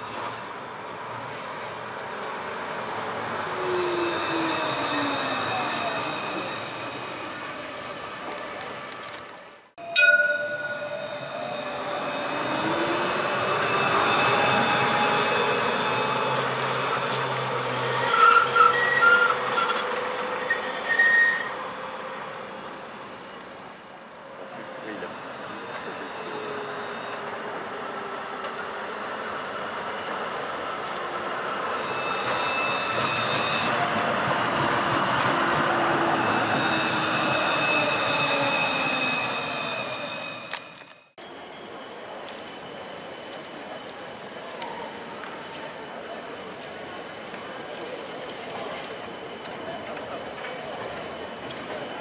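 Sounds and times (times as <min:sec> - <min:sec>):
tram running on rails: 0:00.0 - 0:52.0
high-pitched wheel squeals: 0:03.6 - 0:08.6, 0:09.8 - 0:21.6, 0:31.6 - 0:34.2, 0:35.4 - 0:46.0, 0:48.6 - 0:52.0
steady high tones: 0:09.8 - 0:16.2.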